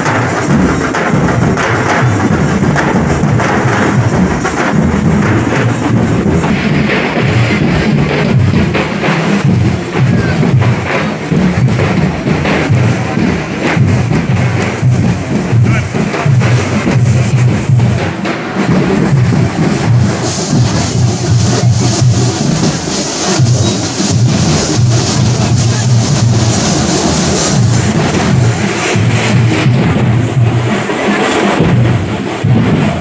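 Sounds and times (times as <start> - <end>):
drum troupe drumming: 0.0 - 33.0
bright hissing high layer: 19.7 - 29.4.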